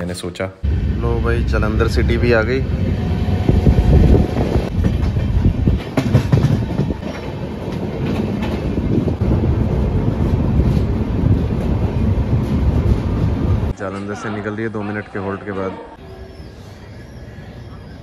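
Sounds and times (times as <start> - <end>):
train rumble: 0.6 - 13.8
train wheels clattering over rail joints: 4.7 - 9.2.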